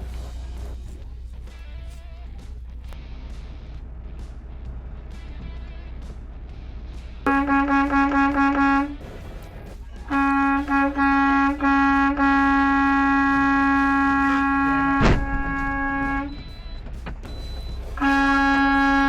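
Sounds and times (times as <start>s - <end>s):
vehicle horn honking: 7.3s - 9.0s, 10.0s - 16.7s, 17.9s - 19.0s
sharp knock: 15.0s - 15.7s.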